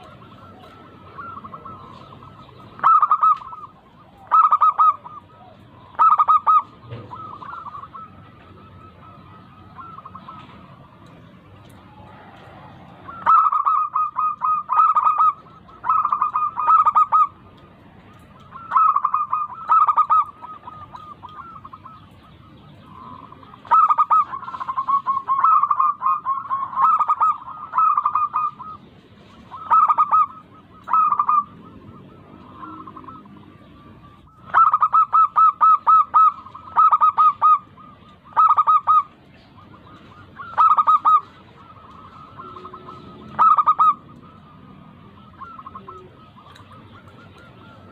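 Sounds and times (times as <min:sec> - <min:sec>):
dove cooing: 0:00.0 - 0:47.9.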